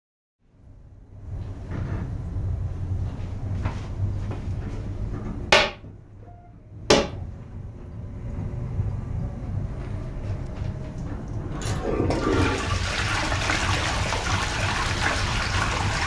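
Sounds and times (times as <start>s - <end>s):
moving train rumble: 0.6s - 12.8s
sharp knocks: 5.5s - 5.9s, 6.9s - 7.3s.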